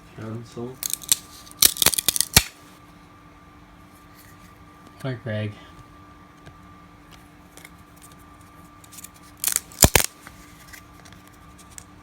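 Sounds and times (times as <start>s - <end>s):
trading cards clicking and snapping: 0.8s - 2.6s, 8.9s - 10.2s.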